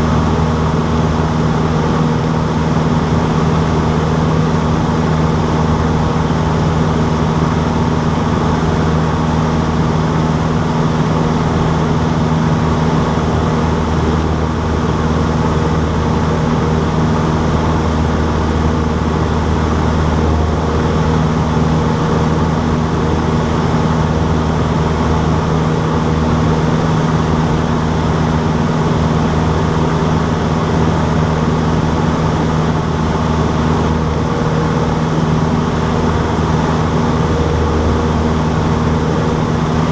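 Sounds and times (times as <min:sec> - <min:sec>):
propeller engine droning: 0:00.0 - 0:39.9.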